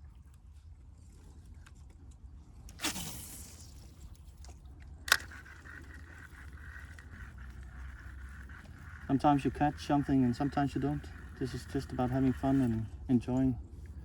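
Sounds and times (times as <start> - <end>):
fishing reel whirring: 2.8 - 14.0
sharp click: 5.1 - 5.6.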